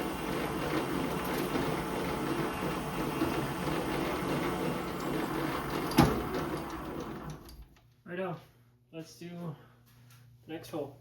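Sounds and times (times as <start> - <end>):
lathe drilling machining noise: 0.0 - 7.4.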